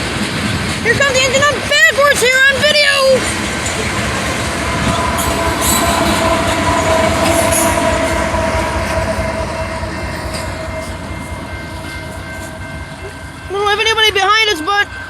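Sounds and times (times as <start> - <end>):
train wheels rumbling over rails: 0.0 - 15.0
steady high tone: 1.4 - 15.0.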